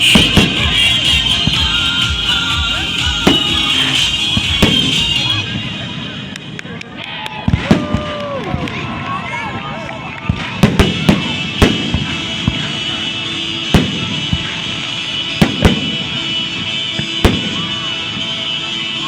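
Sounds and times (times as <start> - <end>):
fireworks bursting with sharp bangs: 0.0 - 6.8, 7.4 - 9.1, 10.1 - 19.0
music: 0.0 - 8.0, 8.6 - 19.0.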